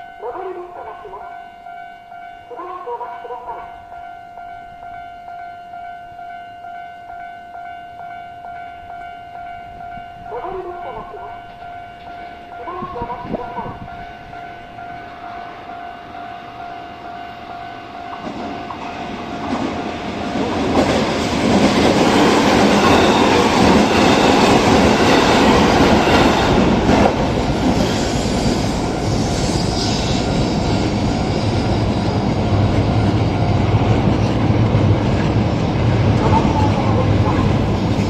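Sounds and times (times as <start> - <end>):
train rumbling: 7.6 - 38.0
wheels clattering on rails: 17.7 - 29.2.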